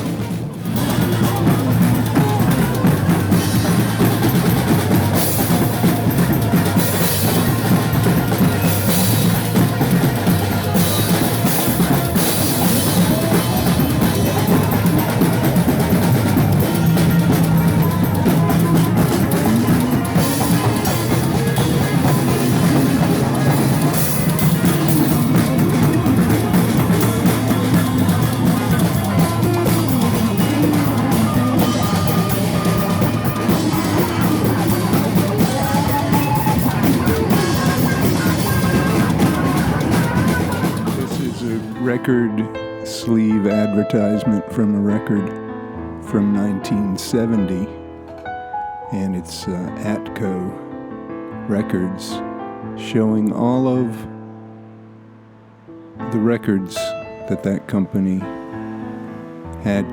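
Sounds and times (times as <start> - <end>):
rock band music: 0.0 - 45.2.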